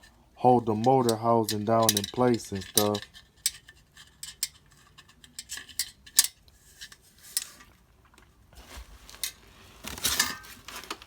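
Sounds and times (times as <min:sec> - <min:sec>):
metallic clicks and clinks: 0:00.8 - 0:06.4.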